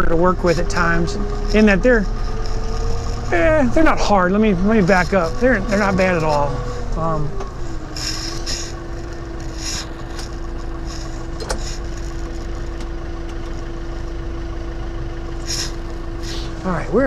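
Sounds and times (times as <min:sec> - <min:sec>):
tractor engine droning: 0:00.0 - 0:17.0.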